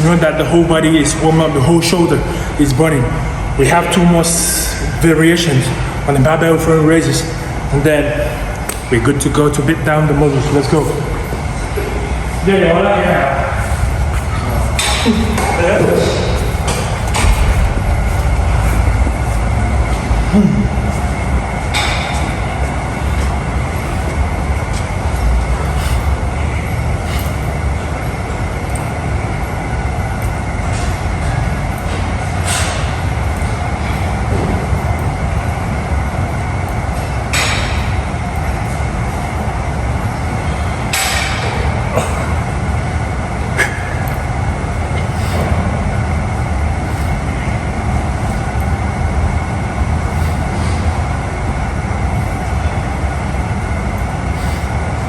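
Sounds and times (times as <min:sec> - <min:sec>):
gym weights clanking: 0:08.2 - 0:55.0
low rumble: 0:11.1 - 0:54.2.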